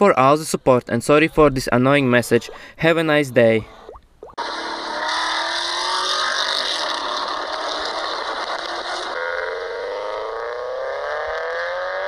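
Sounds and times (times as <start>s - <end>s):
engine revving: 4.4s - 12.0s.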